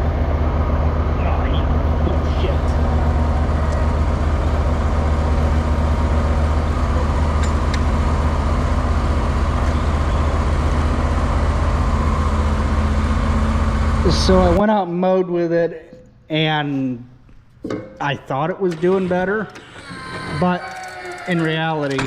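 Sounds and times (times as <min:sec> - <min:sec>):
mower engine running: 0:00.0 - 0:14.6.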